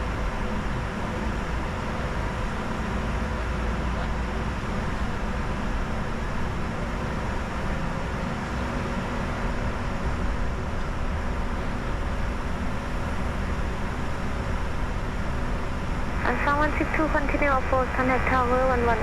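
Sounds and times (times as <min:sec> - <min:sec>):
low hum: 0:16.1 - 0:19.0
faint steady tones: 0:16.2 - 0:19.0.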